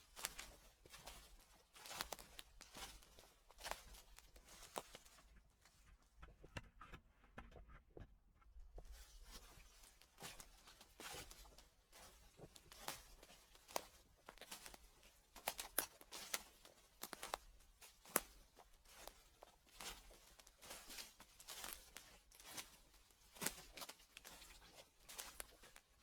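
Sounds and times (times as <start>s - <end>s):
footsteps crunching dry leaves: 0.0s - 5.1s, 20.0s - 24.4s.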